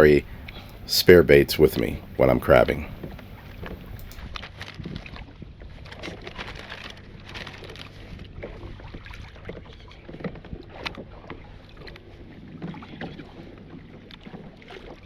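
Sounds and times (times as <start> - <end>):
water sloshing against hull: 0.0 - 15.0
wind rumble on microphone: 0.0 - 15.0.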